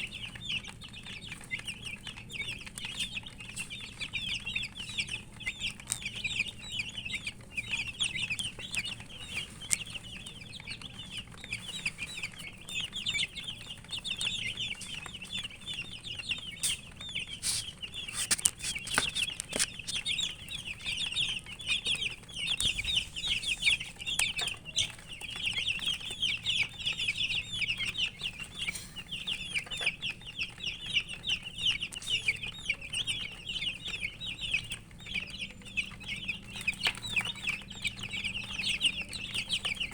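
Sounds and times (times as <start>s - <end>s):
chicks peeping: 0.0s - 39.9s
sharp clicks: 16.5s - 20.3s.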